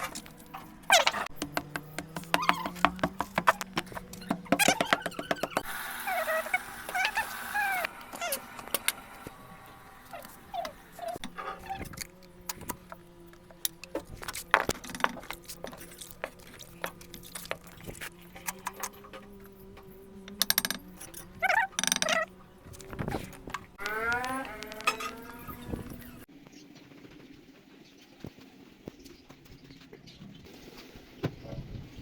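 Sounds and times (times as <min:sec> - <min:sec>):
birds chirping: 0:00.0 - 0:11.8.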